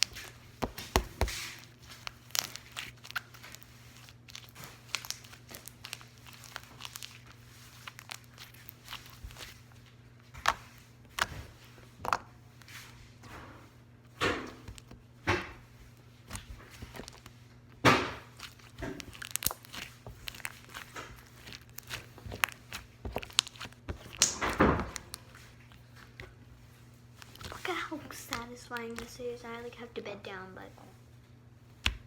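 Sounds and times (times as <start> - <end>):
slime squishing: 0.0 - 30.9, 31.6 - 32.0
sharp pops and clicks: 23.1 - 25.2.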